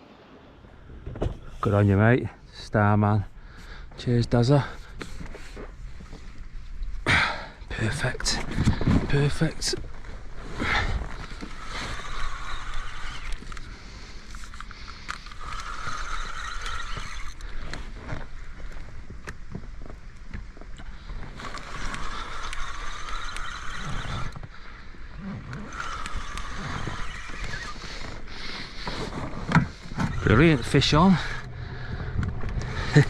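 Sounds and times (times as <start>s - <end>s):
fishing reel whirring and clicking: 10.6s - 17.8s, 21.3s - 33.0s.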